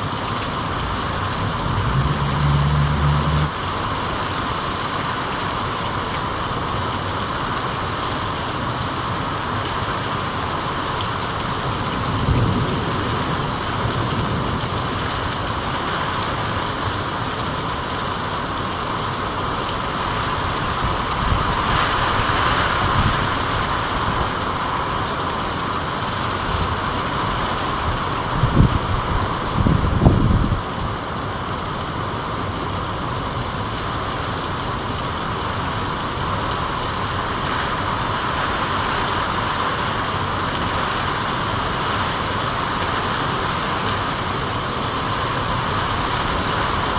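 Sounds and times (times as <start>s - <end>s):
low rumbles: 0.0s - 3.8s
steady rain hiss: 0.0s - 46.9s.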